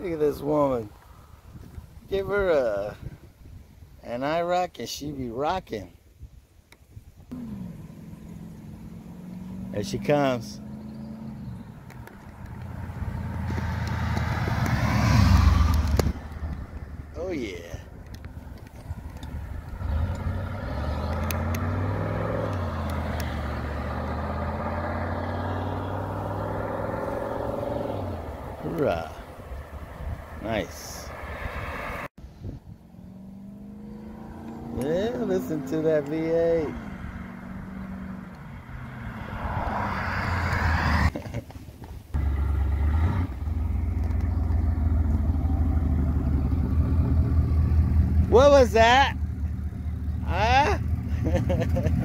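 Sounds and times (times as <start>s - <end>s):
car engine accelerating hard: 7.3s - 17.2s, 19.5s - 28.8s, 32.8s - 41.1s, 42.2s - 52.0s.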